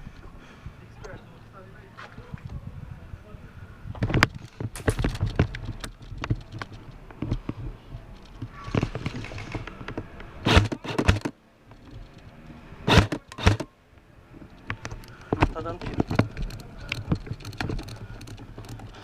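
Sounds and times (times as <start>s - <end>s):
clicks and knocks handling gun: 4.0s - 19.0s
sharp gun bursts: 12.9s - 13.7s.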